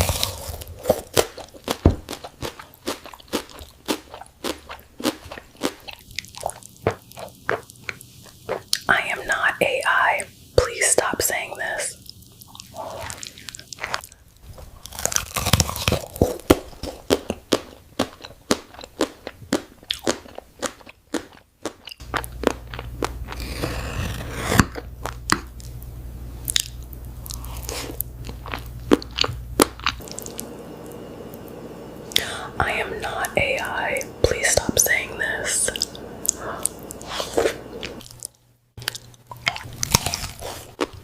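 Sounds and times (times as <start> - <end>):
crunchy food chewing: 0.0 - 8.9, 12.0 - 32.3, 35.7 - 41.0
low steady hum: 22.0 - 41.0.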